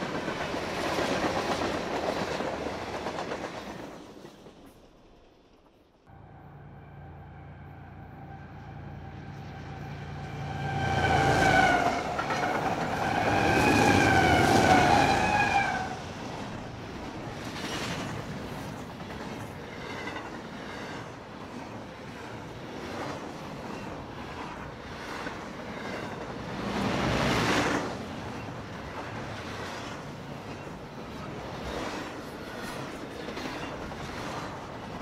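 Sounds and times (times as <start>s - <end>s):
train wheels clattering on rail: 0.0s - 5.9s, 16.3s - 35.0s
diesel locomotives passing: 0.0s - 35.0s
locomotive air horn blasts: 6.1s - 16.0s.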